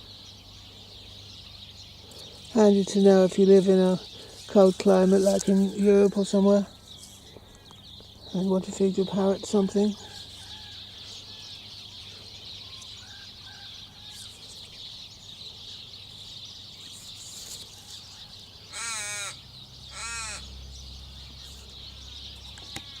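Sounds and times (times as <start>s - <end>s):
distant bird notes: 0.0s - 23.0s
harsh bird calls: 0.0s - 23.0s.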